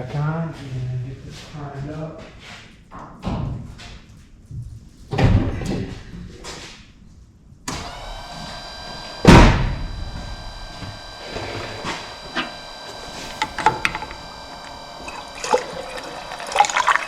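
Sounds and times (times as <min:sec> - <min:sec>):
electric water pump whining: 0:07.7 - 0:17.0.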